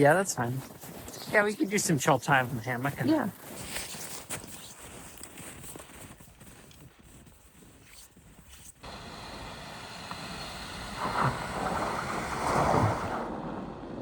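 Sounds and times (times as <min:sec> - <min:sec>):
wind rushing over microphone: 0:09.5 - 0:14.0.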